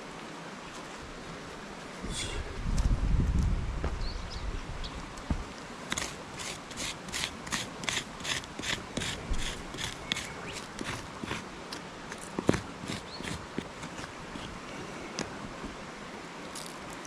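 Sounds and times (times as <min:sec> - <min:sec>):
rhythmic scraping strokes: 0:05.9 - 0:11.5.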